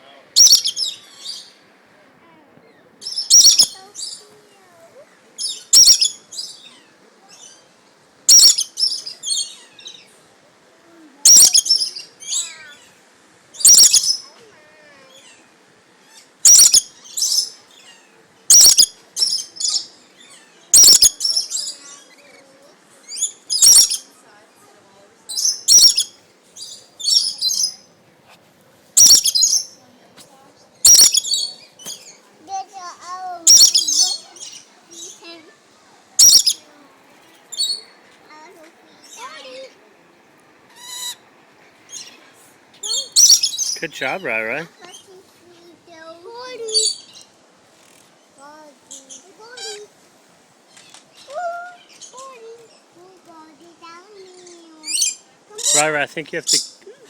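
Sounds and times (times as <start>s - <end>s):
quieter bird calls: 0.1s - 1.7s, 2.6s - 7.7s, 8.3s - 10.2s, 11.3s - 24.3s, 25.3s - 28.0s, 29.0s - 30.0s, 30.6s - 35.6s, 36.2s - 49.9s
birds squawking shrilly: 0.4s - 1.5s, 3.0s - 4.2s, 5.4s - 6.7s, 8.3s - 10.0s, 11.3s - 12.8s, 13.6s - 14.2s, 16.4s - 19.8s, 20.8s - 21.8s, 23.2s - 24.1s, 25.3s - 27.9s, 29.0s - 29.8s, 30.8s - 32.2s, 33.5s - 35.2s, 36.2s - 36.7s, 42.8s - 45.1s.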